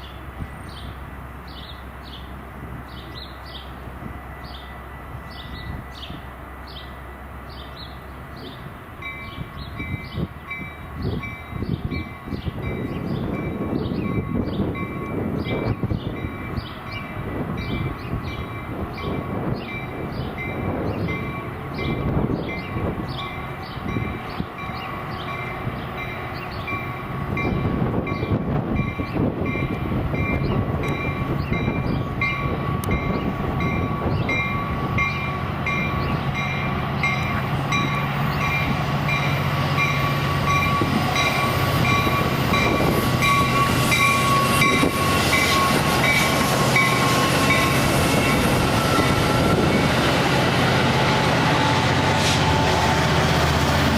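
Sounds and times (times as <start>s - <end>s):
locomotive engine rumble: 0.0s - 53.9s
train passing: 0.0s - 53.9s
crossing bell ringing: 9.0s - 50.0s.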